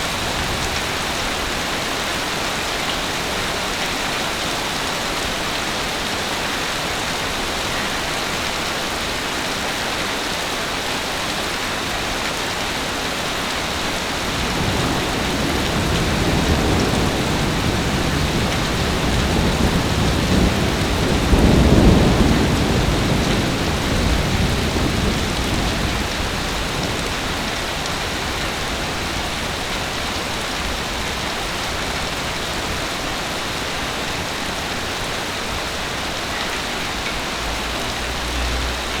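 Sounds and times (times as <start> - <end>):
heavy rain falling: 0.0 - 39.0
low rumble of thunder: 14.2 - 29.6.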